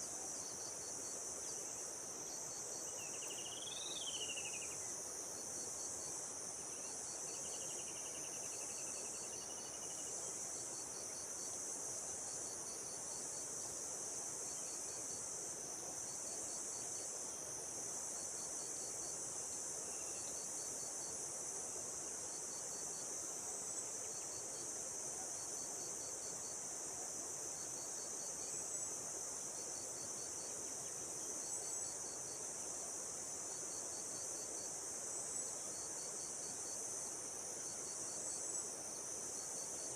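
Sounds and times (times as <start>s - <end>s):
insect chirp pulses: 0.0s - 5.0s
high-pitched insect chorus: 0.0s - 39.9s.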